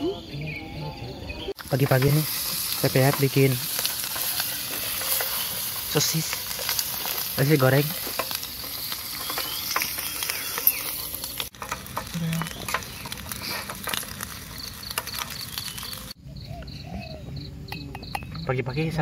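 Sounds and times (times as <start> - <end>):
sausages sizzling in oil: 1.5 - 16.2
metal spoon scraping a pan: 1.8 - 16.0.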